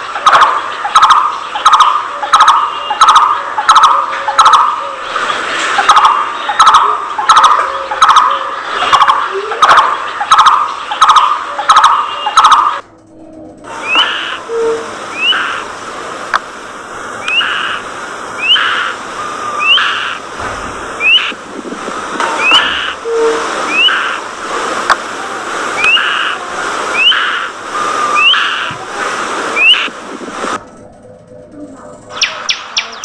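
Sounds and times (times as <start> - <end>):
steady hiss: 0.0 - 12.8, 13.6 - 31.1
budgerigars chirping: 13.8 - 14.4, 15.2 - 15.6, 17.2 - 17.8, 18.4 - 19.0, 19.6 - 20.2, 21.0 - 21.4, 22.4 - 23.0, 23.7 - 24.2, 28.2 - 28.7, 32.1 - 33.0
rising whistled bird call: 13.8 - 15.6, 18.4 - 20.2, 21.0 - 21.4, 22.4 - 24.2, 26.9 - 28.8, 29.6 - 29.9.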